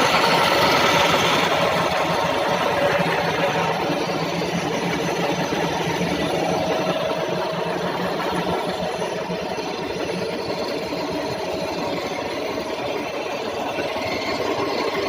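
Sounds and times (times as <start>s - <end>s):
milling machine hum: 0.0s - 15.0s.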